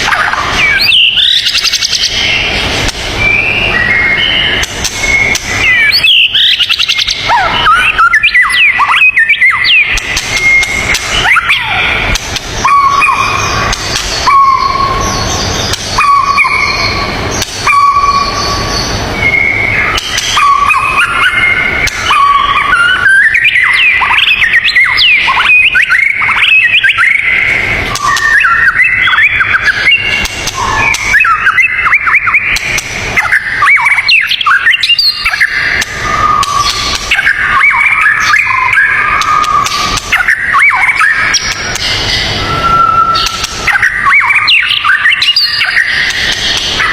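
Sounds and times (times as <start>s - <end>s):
steady rushing hiss: 0.0s - 7.3s, 9.8s - 22.7s
songbird chorus: 0.0s - 46.9s.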